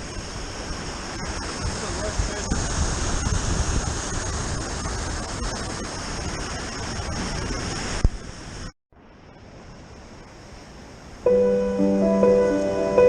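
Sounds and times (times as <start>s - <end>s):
surf rushing on rocks: 0.1s - 8.1s
soft piano background music: 11.3s - 13.0s.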